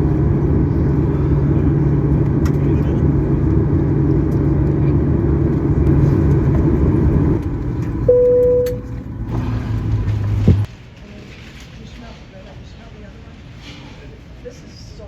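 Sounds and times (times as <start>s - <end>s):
low vehicle rumble: 0.0s - 10.7s.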